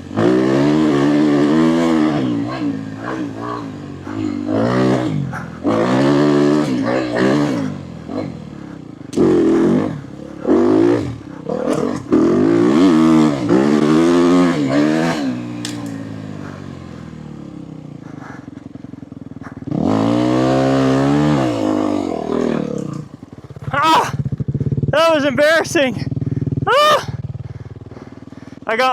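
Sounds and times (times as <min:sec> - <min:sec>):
dirt bike engine revving: 0:00.0 - 0:28.9
sharp clicks: 0:15.6 - 0:16.1.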